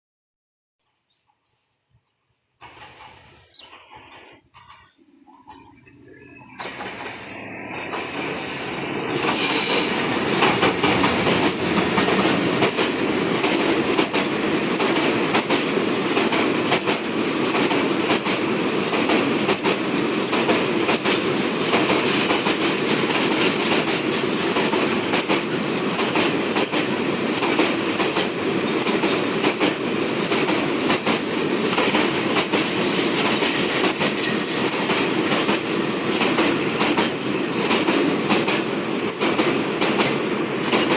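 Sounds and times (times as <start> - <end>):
freight train rolling past: 2.6 - 40.9
wheels clattering over rail joints: 2.6 - 40.9
short high squeal: 4.6 - 13.1.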